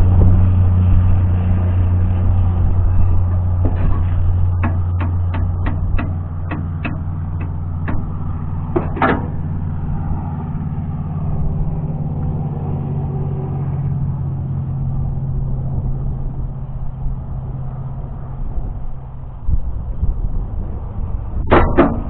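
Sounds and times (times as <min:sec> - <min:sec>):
engine running with low hum: 0:00.0 - 0:22.0
loud metallic clank: 0:03.1 - 0:09.9, 0:21.4 - 0:22.0.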